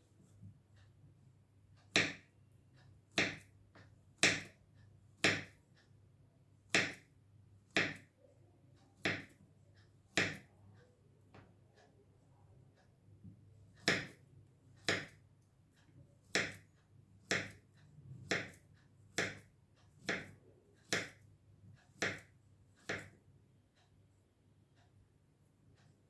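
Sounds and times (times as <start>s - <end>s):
knife chopping onto cutting board: 5.2s - 5.5s, 7.8s - 8.0s, 9.0s - 9.3s, 13.8s - 14.2s, 14.8s - 15.2s, 16.3s - 16.6s, 17.3s - 17.6s, 18.2s - 18.6s, 20.0s - 20.3s, 20.9s - 21.2s, 22.0s - 23.1s.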